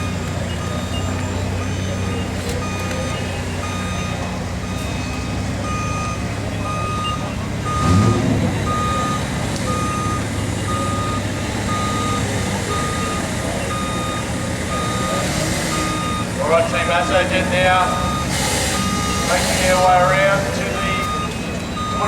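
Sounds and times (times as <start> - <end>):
off-road engine rumbling: 0.0 - 22.0
reversing alarm beeping: 0.0 - 22.0.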